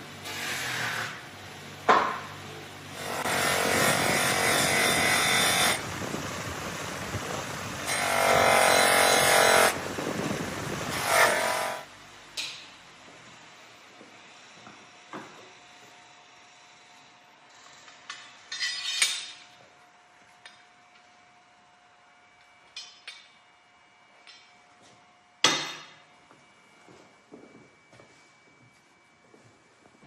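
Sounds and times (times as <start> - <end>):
power tool running in bursts: 2.9 - 11.9.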